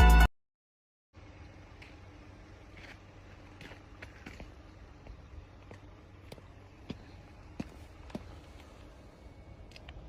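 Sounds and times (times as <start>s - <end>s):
low steady rumble: 1.2s - 10.0s.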